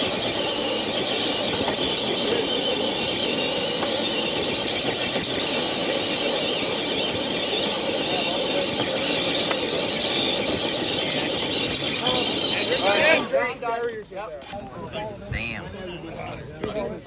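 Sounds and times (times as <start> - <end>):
electric motor whining: 0.0 - 13.4.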